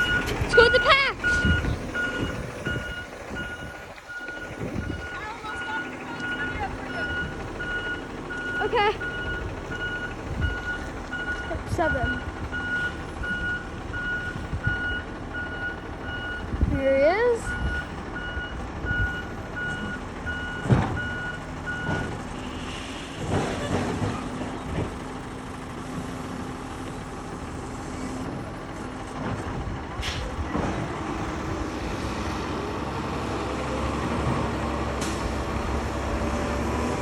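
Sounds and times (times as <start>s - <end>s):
reversing alarm beeping: 0.0s - 16.5s, 17.4s - 22.2s
garbage truck engine running: 0.0s - 37.0s.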